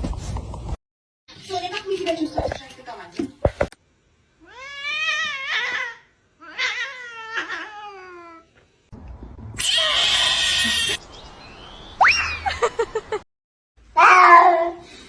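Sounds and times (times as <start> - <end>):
cat meowing: 9.6 - 11.0.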